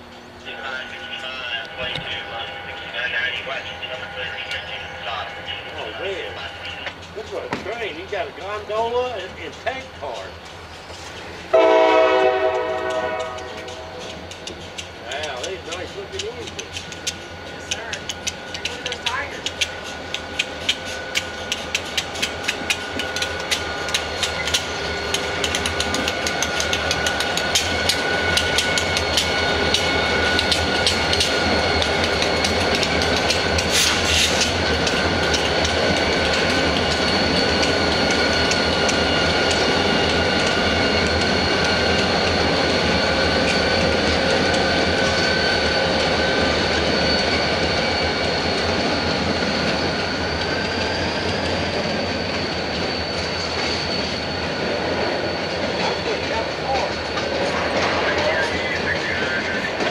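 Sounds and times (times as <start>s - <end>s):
freight train rumble: 0.0s - 59.9s
train wheels clicking over joints: 3.0s - 59.9s
high wheel squeal: 19.3s - 59.9s.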